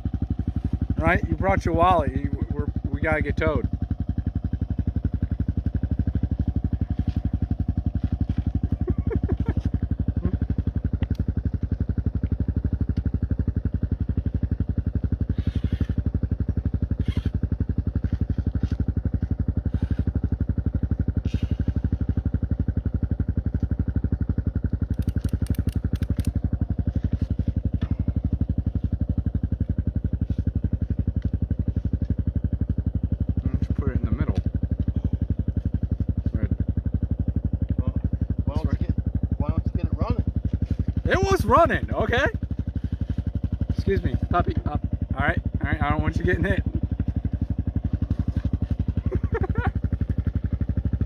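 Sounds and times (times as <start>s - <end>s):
small engine idling: 0.0s - 51.0s
light clicks and rattles: 24.9s - 26.4s.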